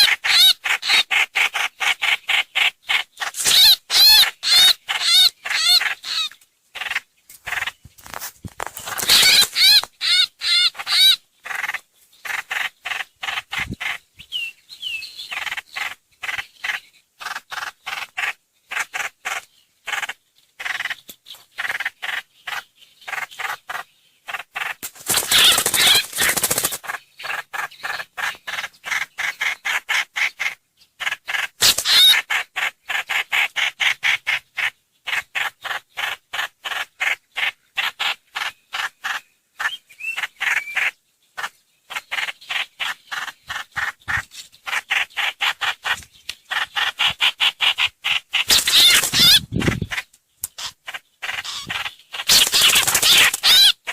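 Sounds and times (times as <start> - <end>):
harsh bird chattering: 0.0 - 7.8, 8.8 - 14.3, 15.2 - 53.9
bird calls of repeated notes: 0.0 - 8.1, 8.8 - 53.9.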